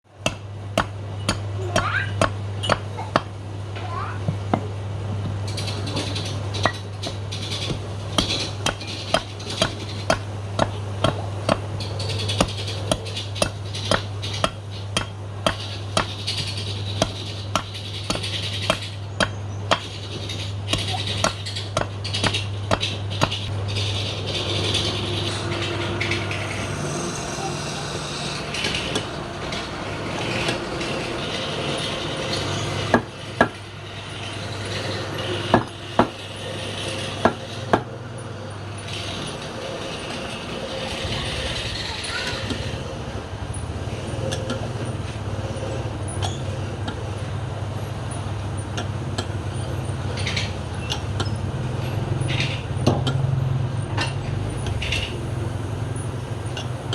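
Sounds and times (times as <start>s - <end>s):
turning tool scraping wood: 5.5s - 10.8s, 11.5s - 37.9s
sharp knocks: 6.1s - 23.5s
wood lathe motor hum: 23.6s - 43.2s.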